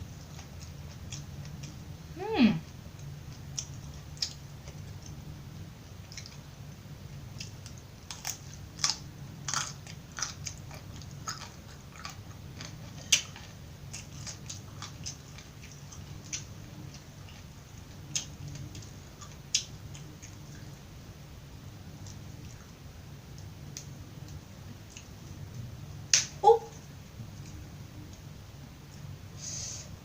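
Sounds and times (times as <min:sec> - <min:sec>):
chewing raw vegetables crunchily: 0:02.7 - 0:21.0.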